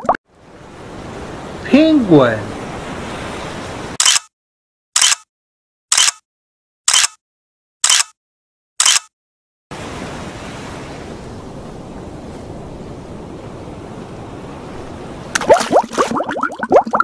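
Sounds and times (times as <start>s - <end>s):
ocean surf rushing: 0.3s - 4.0s, 9.7s - 16.1s
bubbling gurgles: 15.4s - 17.0s.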